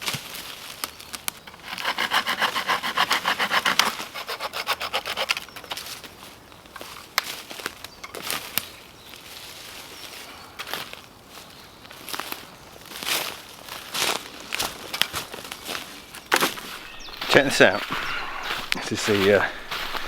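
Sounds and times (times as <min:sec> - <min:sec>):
hand saw cutting wood: 0:01.5 - 0:05.8, 0:16.5 - 0:20.0.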